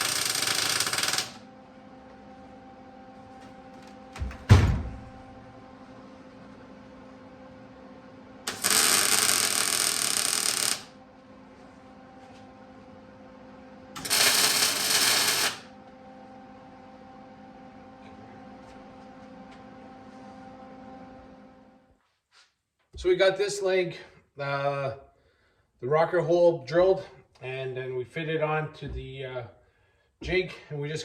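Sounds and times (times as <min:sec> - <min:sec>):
metalworking noise bursts: 0:00.0 - 0:01.4, 0:08.5 - 0:10.9, 0:14.0 - 0:15.7
steady hum: 0:00.0 - 0:22.0.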